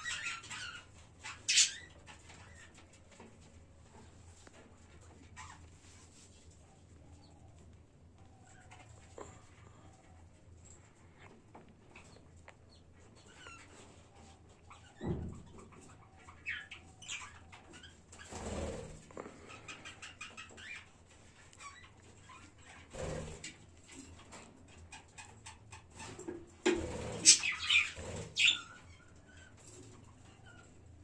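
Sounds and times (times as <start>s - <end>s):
budgerigars chirping and chattering: 0.0s - 2.7s, 14.7s - 18.6s, 19.4s - 21.0s, 26.9s - 29.6s.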